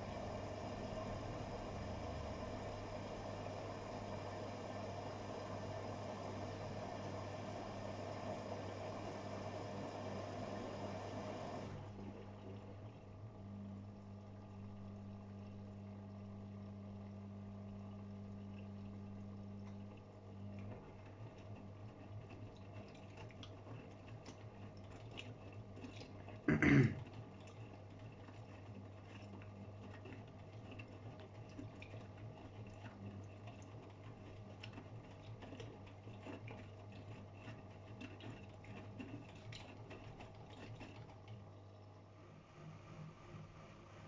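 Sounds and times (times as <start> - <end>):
washing machine motor hum: 0.0 - 44.0
water sloshing and ticking: 11.7 - 42.4.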